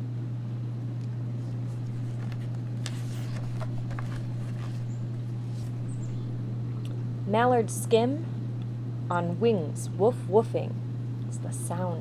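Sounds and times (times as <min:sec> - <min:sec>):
steady low hum: 0:00.0 - 0:12.0
faint clicks and rustles: 0:01.0 - 0:07.0.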